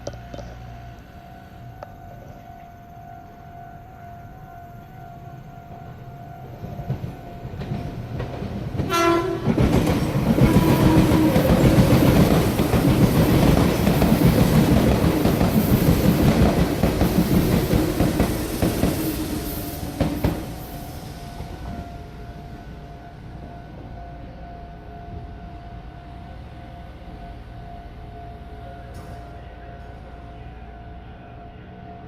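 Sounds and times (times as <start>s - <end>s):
level crossing warning signal: 0.0s - 32.0s
train rumble and wheel clatter: 0.0s - 32.0s
musical train horn: 8.8s - 12.8s.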